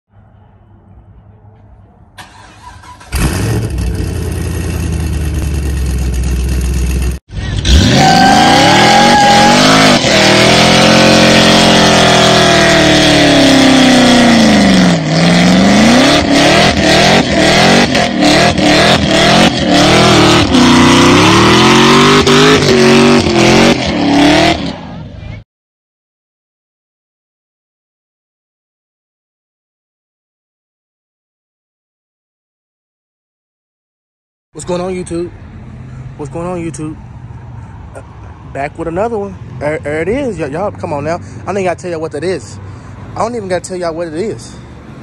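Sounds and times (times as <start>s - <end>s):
car engine revving high: 3.0s - 25.0s
car engine running steadily: 3.1s - 7.8s.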